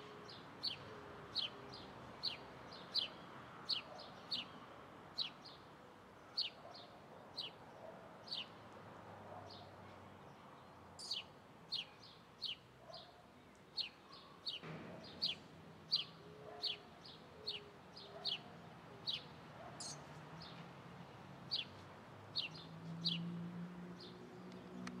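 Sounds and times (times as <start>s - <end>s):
small bird chirping: 11.0s - 13.1s, 13.7s - 20.6s, 21.5s - 23.2s.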